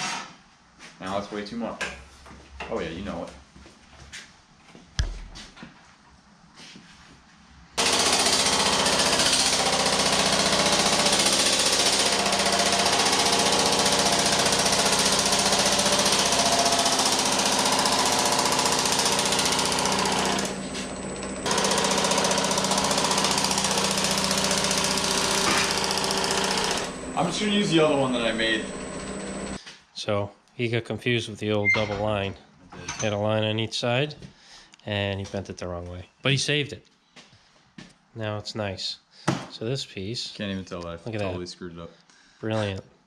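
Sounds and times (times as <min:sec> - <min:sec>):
sheet metal machine hammering: 0:07.8 - 0:29.6.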